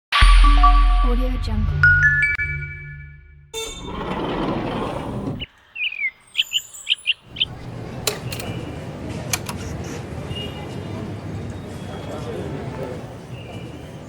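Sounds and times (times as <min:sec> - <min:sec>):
bird chirping: 0:05.4 - 0:08.8
rushing background noise: 0:07.3 - 0:14.0
sharp clicks: 0:07.4 - 0:08.7, 0:09.3 - 0:09.7.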